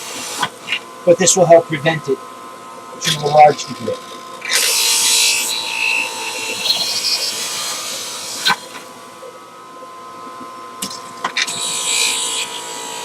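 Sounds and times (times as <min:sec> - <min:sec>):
juicer motor whining: 0:01.7 - 0:13.0
produce grinding and shredding: 0:03.0 - 0:09.2.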